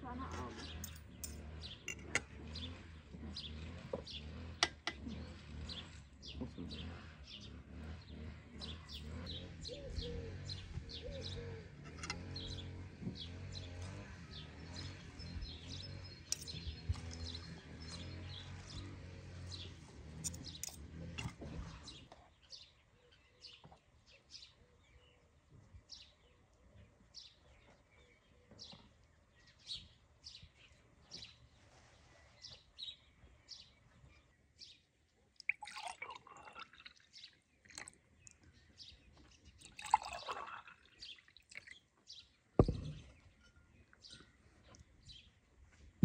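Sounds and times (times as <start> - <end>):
birds chirping: 0.0 - 45.5
sharp low thump: 42.6 - 43.1.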